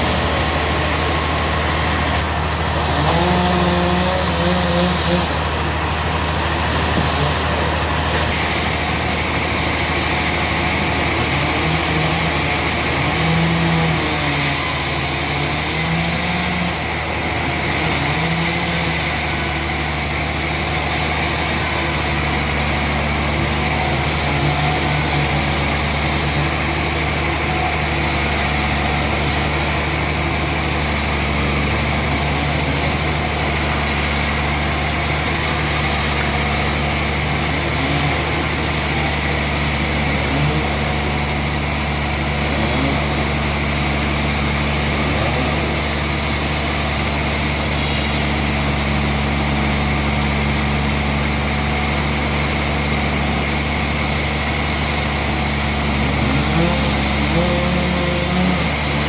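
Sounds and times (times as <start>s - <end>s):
engine running steadily: 0.0s - 59.0s
hiss: 17.7s - 59.0s.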